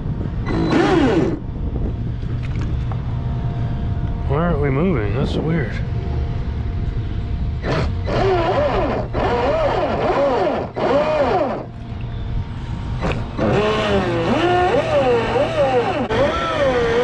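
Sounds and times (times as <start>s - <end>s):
electric motor whine revving: 0.4s - 1.4s, 7.6s - 11.8s, 12.9s - 17.0s.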